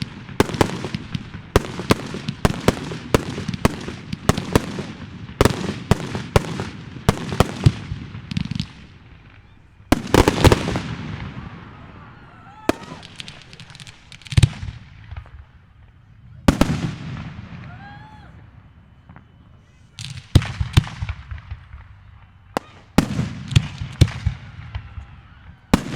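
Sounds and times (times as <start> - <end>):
fireworks bangs: 0.0 - 25.9.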